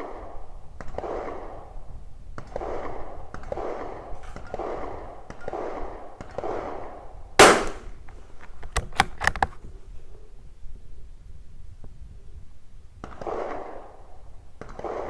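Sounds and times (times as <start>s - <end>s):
rifle shot: 7.4s - 8.1s
rifle bolt metallic clicks: 7.4s - 9.6s.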